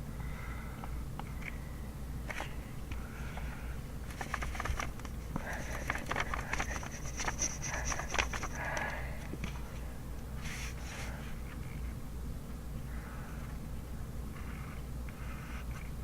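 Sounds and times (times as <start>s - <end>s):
steady low hum: 0.0s - 16.0s
pen scratching on paper: 5.5s - 8.8s, 14.3s - 16.0s.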